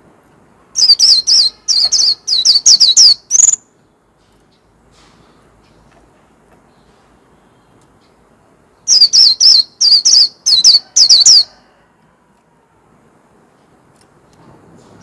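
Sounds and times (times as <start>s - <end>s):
bird singing high notes: 0.8s - 3.7s.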